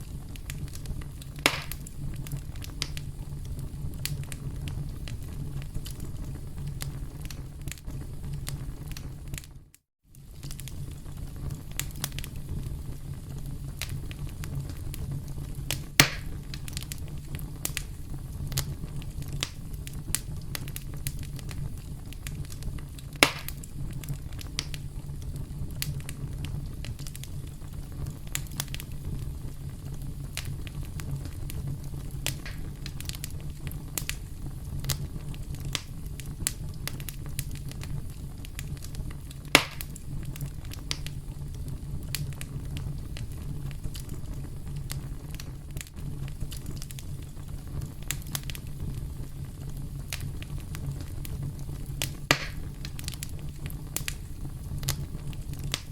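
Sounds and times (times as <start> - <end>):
campfire crackling: 0.0 - 55.9
wood popping and snapping: 1.4 - 1.9, 16.0 - 16.3, 23.2 - 23.6, 32.2 - 33.0, 52.0 - 53.2.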